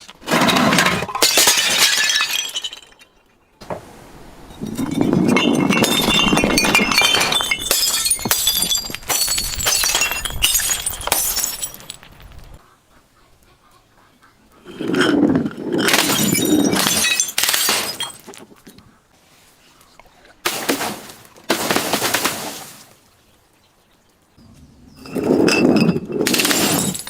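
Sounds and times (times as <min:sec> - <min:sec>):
glass shards clinking: 0:04.5 - 0:12.1, 0:14.7 - 0:18.4, 0:25.0 - 0:27.0
glass bottle crunching: 0:04.6 - 0:12.4, 0:14.7 - 0:18.4, 0:25.0 - 0:27.0.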